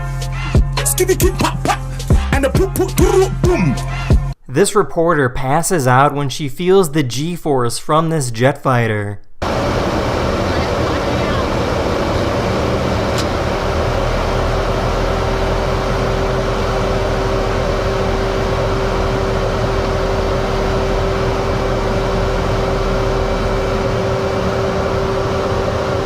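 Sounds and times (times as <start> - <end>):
constant hum: 9.4 - 26.0
jet cockpit roar: 9.4 - 26.0.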